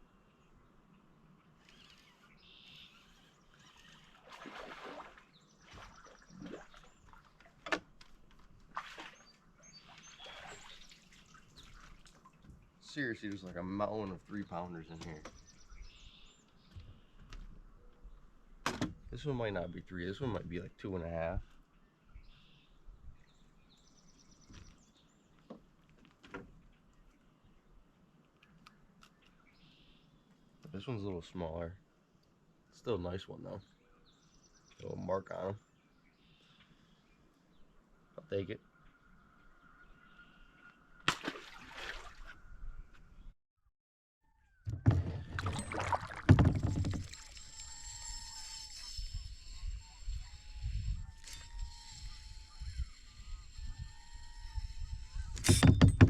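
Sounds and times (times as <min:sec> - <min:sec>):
small birds chirping: 0:00.0 - 0:07.4, 0:08.9 - 0:18.4, 0:19.0 - 0:25.8, 0:32.1 - 0:41.0
water splashes: 0:03.8 - 0:07.9, 0:08.6 - 0:13.1, 0:41.1 - 0:42.4, 0:44.7 - 0:47.6.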